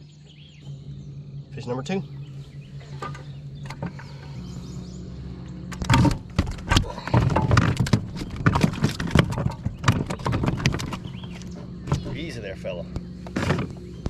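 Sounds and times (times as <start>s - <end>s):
fish flopping and slapping: 5.8s - 12.2s.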